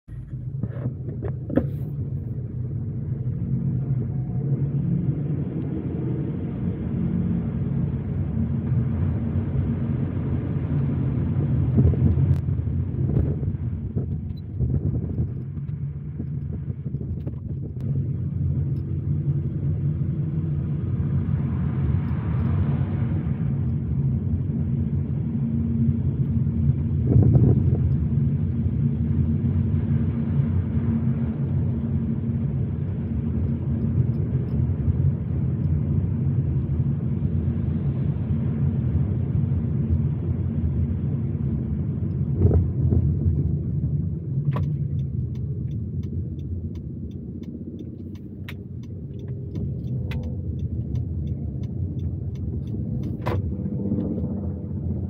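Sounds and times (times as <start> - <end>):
car engine and tyres on road: 0.0 - 55.0.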